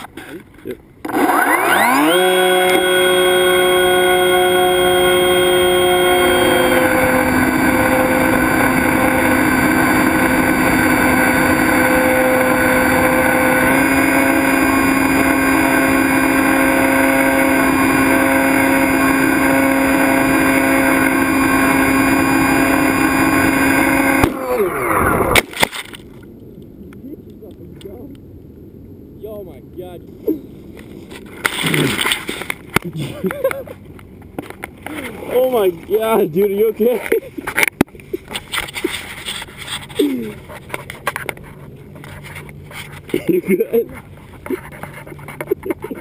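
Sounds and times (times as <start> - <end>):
electric motor and propeller whine: 1.0 - 25.6.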